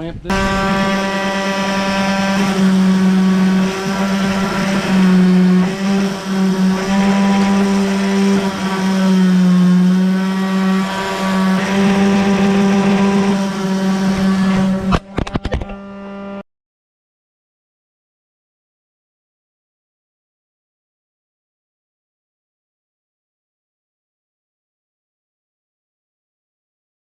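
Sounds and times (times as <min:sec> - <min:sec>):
orbital sander running: 0:00.3 - 0:16.4.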